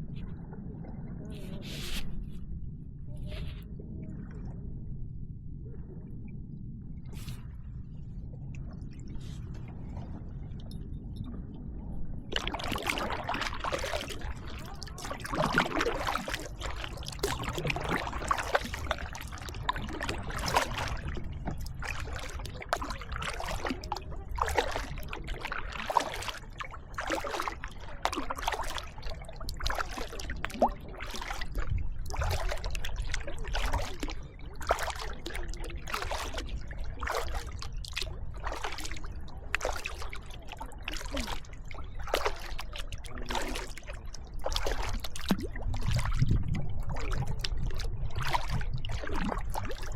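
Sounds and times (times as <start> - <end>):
steady low rumble: 0.0 - 49.9
kayak paddle splashing water: 12.2 - 49.9.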